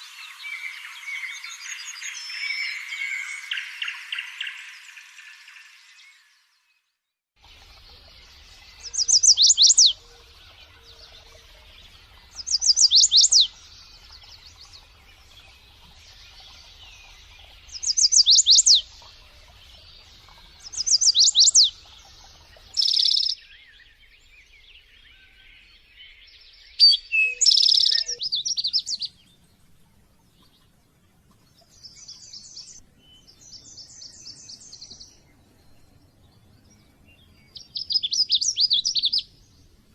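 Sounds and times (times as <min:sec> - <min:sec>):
songbirds singing: 0:00.0 - 0:39.9
bird trills: 0:07.4 - 0:24.0, 0:26.7 - 0:29.2
bird whistles sweeping downward: 0:26.7 - 0:29.0.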